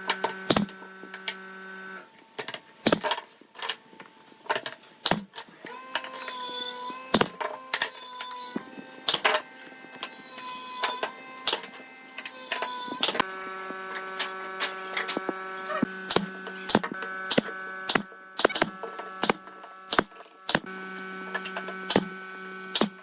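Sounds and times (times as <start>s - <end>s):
steady machine hum: 0.0s - 23.0s
sharp clicks and knocks: 10.9s - 20.7s, 21.3s - 23.0s.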